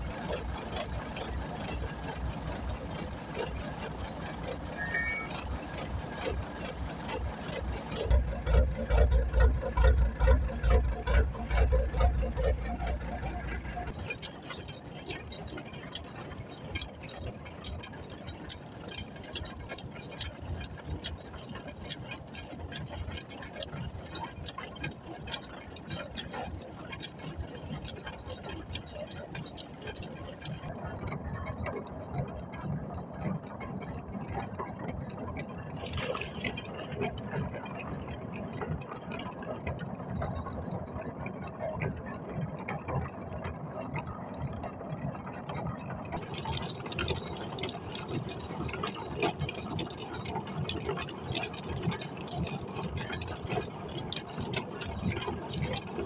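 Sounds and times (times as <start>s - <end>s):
truck diesel engine running: 0.0s - 18.8s.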